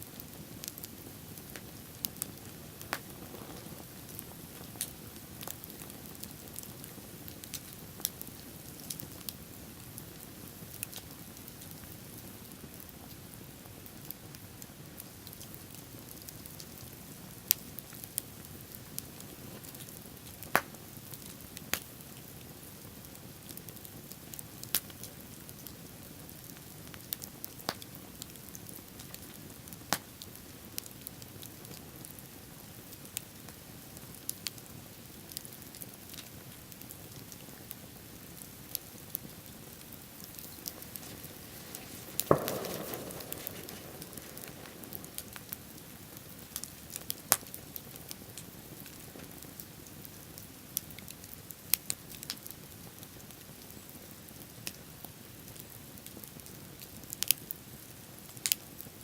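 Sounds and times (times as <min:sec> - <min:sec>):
bonfire crackling and popping: 0:00.0 - 0:59.0
loud crack: 0:40.2 - 0:46.3.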